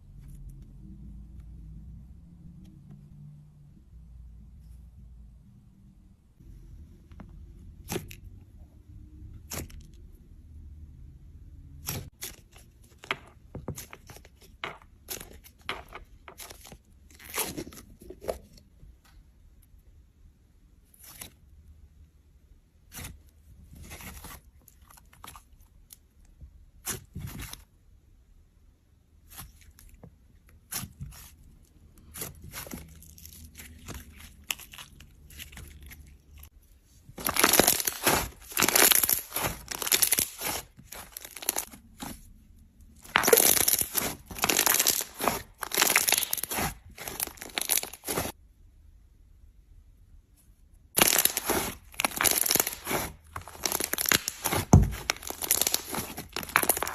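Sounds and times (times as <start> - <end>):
slime crackling and popping: 37.2 - 41.8, 43.0 - 48.4, 51.0 - 56.9.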